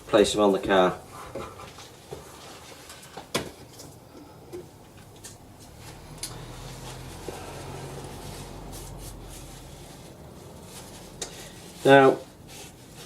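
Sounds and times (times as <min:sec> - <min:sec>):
cloth sheet rustling: 0:05.6 - 0:13.0.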